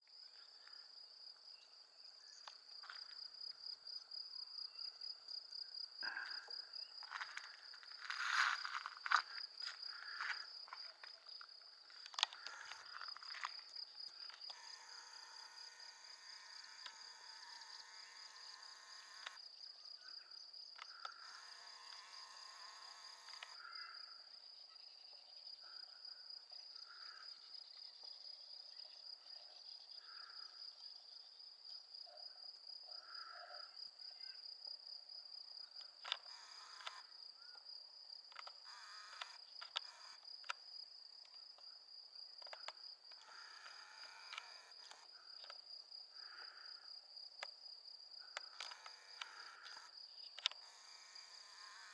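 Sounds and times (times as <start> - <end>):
faint steady tone: 0.0 - 51.9
crickets trilling: 0.1 - 32.0, 32.9 - 51.9
sharp clicks: 19.0 - 19.4, 48.3 - 50.7.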